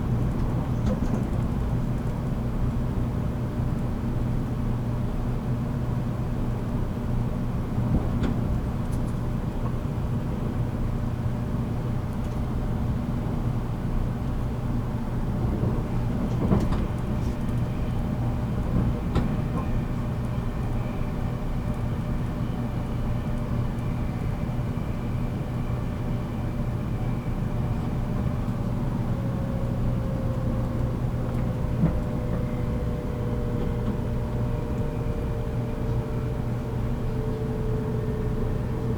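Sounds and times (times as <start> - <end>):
electric train interior hum: 0.0 - 38.9.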